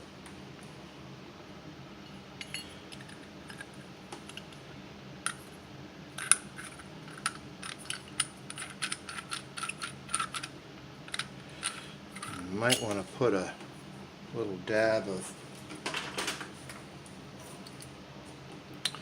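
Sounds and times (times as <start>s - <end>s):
small metal parts clinking: 2.4s - 4.4s, 6.2s - 10.5s, 11.1s - 13.1s.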